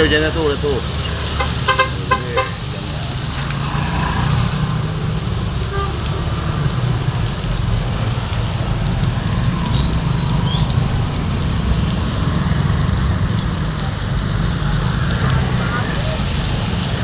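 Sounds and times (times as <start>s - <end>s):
heavy rain pouring: 0.0s - 17.0s
deep rumble: 2.8s - 15.6s.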